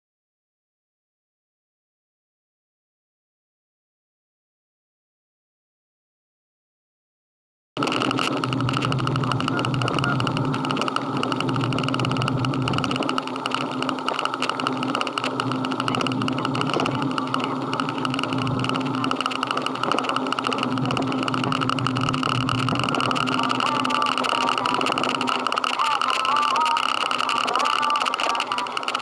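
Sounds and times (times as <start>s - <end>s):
constant rushing noise: 7.8s - 29.0s
motorcycle engine running: 7.8s - 29.0s.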